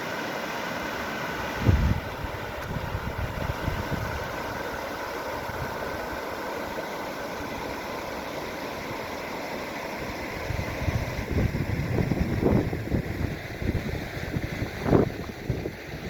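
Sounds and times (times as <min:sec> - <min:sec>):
wind on microphone: 0:01.6 - 0:04.6, 0:10.4 - 0:16.0.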